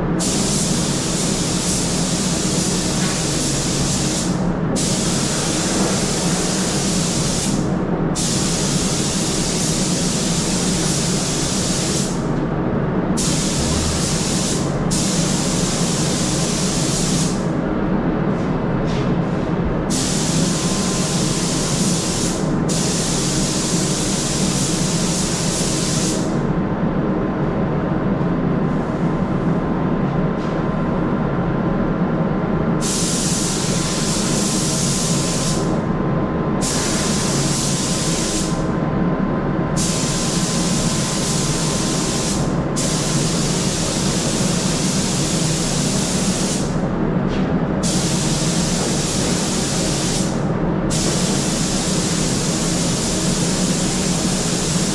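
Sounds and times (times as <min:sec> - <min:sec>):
fan running: 0:00.0 - 0:54.9
air spray gun hissing: 0:00.2 - 0:07.6, 0:08.2 - 0:12.2, 0:13.2 - 0:17.5, 0:19.9 - 0:26.3, 0:32.8 - 0:35.7, 0:36.6 - 0:38.6, 0:39.8 - 0:46.7, 0:47.8 - 0:54.9.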